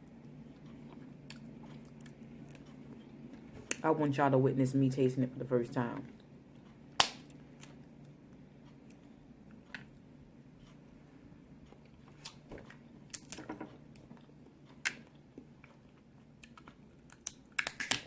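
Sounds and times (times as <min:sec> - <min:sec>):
person chewing: 0:00.0 - 0:03.6, 0:11.6 - 0:17.8.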